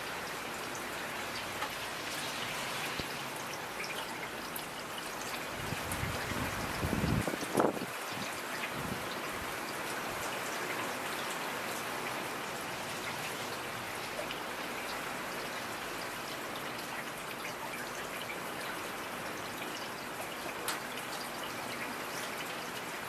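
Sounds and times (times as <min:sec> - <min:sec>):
rain hissing: 0:00.0 - 0:10.4.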